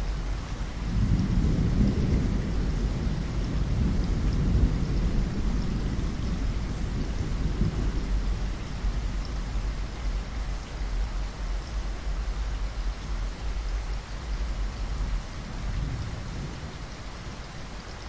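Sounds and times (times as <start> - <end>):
rolling thunder rumble: 0.0 - 11.1, 14.5 - 17.8
steady rain: 0.0 - 18.0.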